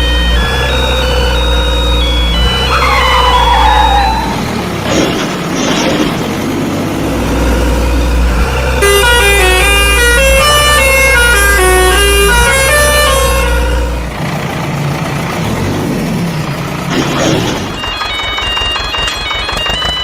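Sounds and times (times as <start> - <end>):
truck engine rumble: 0.0 - 20.0.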